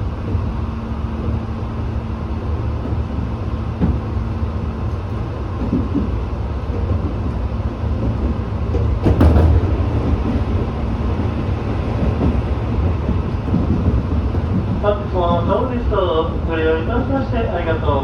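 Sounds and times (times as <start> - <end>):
electric train rumbling: 0.0 - 18.0
wheels clattering over rail joint: 8.0 - 18.0.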